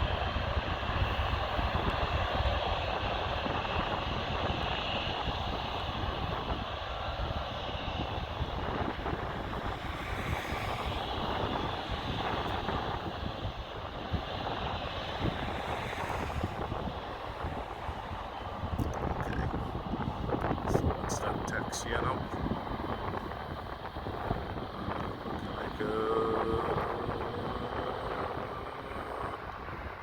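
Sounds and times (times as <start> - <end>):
jet engines rumbling: 0.0 - 30.0
wind buffeting microphone: 0.0 - 30.0.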